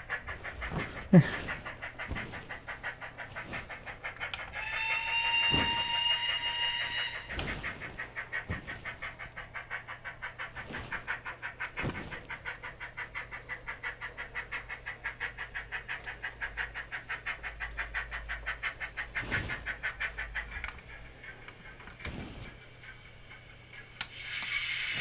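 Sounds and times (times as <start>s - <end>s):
model steam locomotive chuffs: 0.0s - 25.0s.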